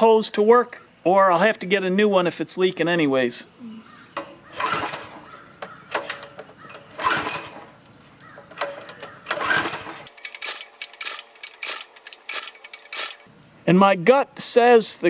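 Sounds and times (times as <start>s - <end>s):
engine pull-start cranking: 4.6s - 5.3s, 5.9s - 7.7s, 8.6s - 13.3s.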